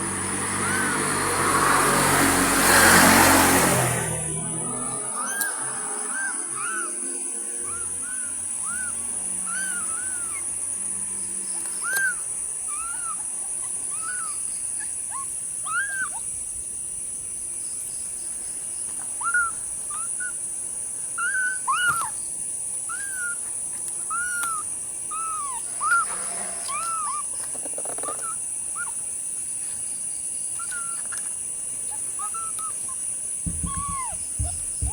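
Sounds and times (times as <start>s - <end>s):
kittens mewing: 0.0s - 10.7s, 11.5s - 16.4s, 19.2s - 20.4s, 21.2s - 22.2s, 22.9s - 29.1s, 30.5s - 34.9s
high-pitched whine: 4.0s - 9.4s.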